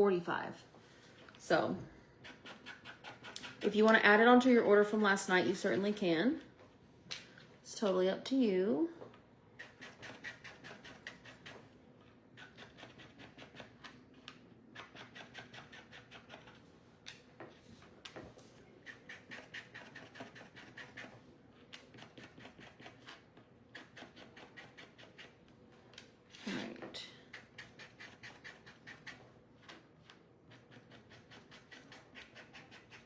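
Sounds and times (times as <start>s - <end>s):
marker scratching: 12.4s - 14.0s, 27.4s - 29.8s, 30.5s - 33.0s.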